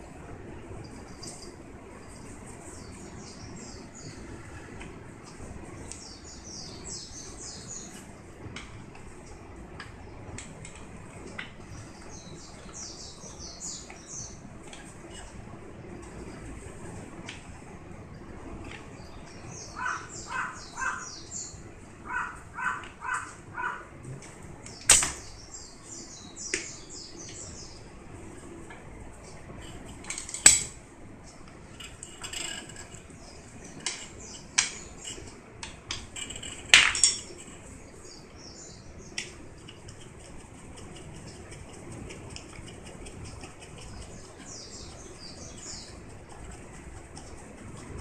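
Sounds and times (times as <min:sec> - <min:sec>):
birds chirping: 0:05.6 - 0:08.3, 0:11.4 - 0:15.3, 0:18.8 - 0:24.0, 0:24.7 - 0:28.6, 0:31.2 - 0:48.0.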